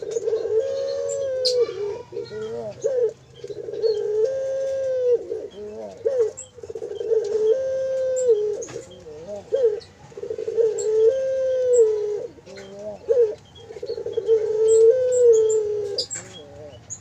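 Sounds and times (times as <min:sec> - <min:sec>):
dove chick cooing cries: 0:00.0 - 0:17.0
faint high bird chirps: 0:00.1 - 0:04.1, 0:10.7 - 0:17.0.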